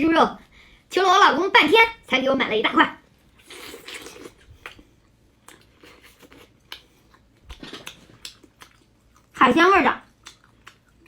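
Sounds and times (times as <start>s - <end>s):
chewing and biting food: 3.4s - 9.4s, 10.0s - 11.0s.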